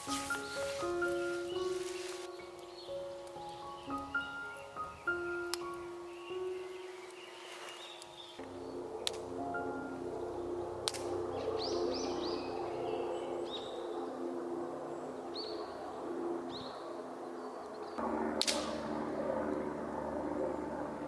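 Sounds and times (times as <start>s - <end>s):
small birds chirping: 0.0s - 14.2s.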